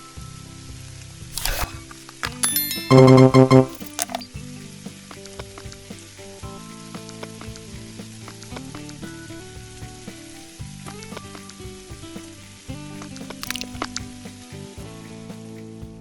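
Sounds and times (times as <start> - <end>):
background music: 1.4 - 5.2, 5.8 - 16.0.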